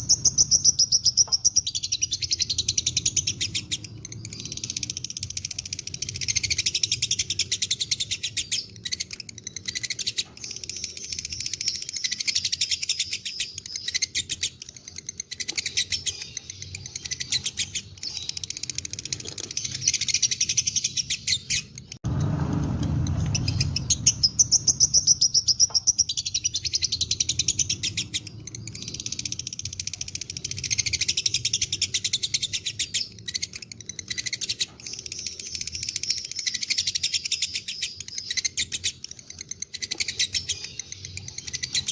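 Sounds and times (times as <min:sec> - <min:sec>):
lovebirds chattering: 0:00.0 - 0:22.0, 0:23.0 - 0:41.9
low rumbling noise: 0:22.0 - 0:25.6.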